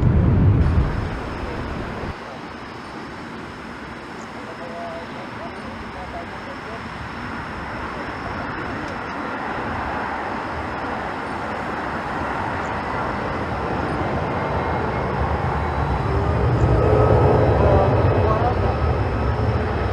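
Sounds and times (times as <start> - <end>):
jet airliner engine rumble: 0.0 - 19.9.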